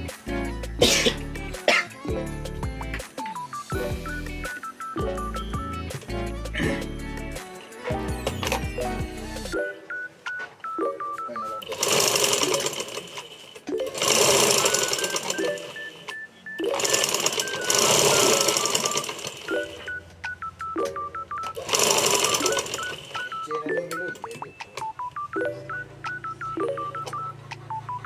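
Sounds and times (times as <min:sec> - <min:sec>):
whirring rattling mechanical noise: 0:11.6 - 0:20.4, 0:21.4 - 0:23.5
beeping electronic tune: 0:14.6 - 0:28.0.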